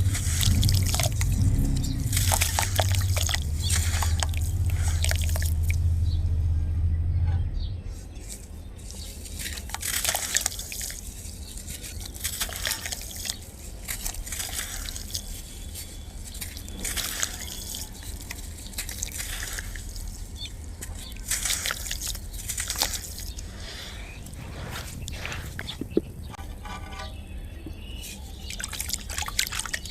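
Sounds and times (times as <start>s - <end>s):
sand crumbling into water: 0.0s - 5.8s, 8.8s - 26.1s
low steady hum: 0.0s - 29.9s.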